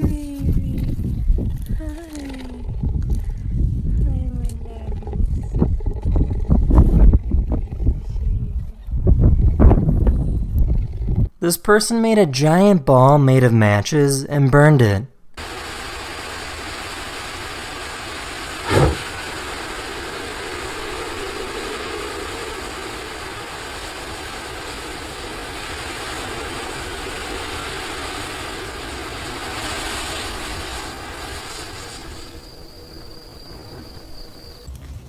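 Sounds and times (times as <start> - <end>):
fire rushing: 15.4 - 34.7
sudden loud fire burst: 18.4 - 20.6.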